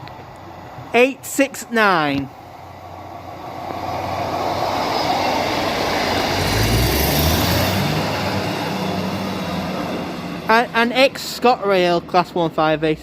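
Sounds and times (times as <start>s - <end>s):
diesel engines droning: 0.0s - 13.0s
wheel-on-rail noise: 2.4s - 12.5s.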